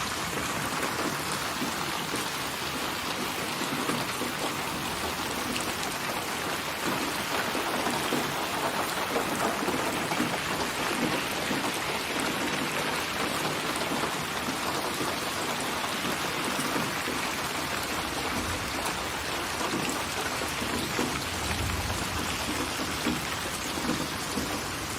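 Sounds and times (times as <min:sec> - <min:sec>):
rain pattering on surfaces: 0:00.0 - 0:24.9
low rumble of thunder: 0:18.3 - 0:24.9.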